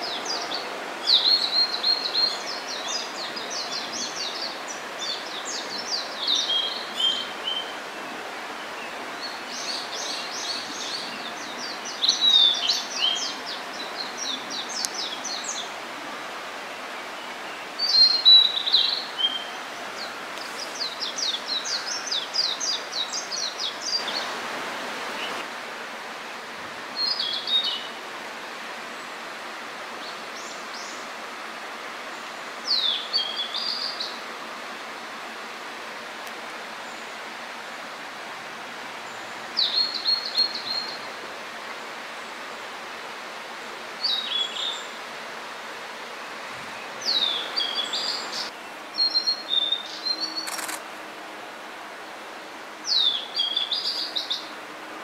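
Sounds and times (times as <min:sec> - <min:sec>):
steady background hiss: 0:00.0 - 0:55.0
bird singing whistled notes: 0:09.2 - 0:13.4, 0:47.0 - 0:50.8, 0:52.9 - 0:54.4.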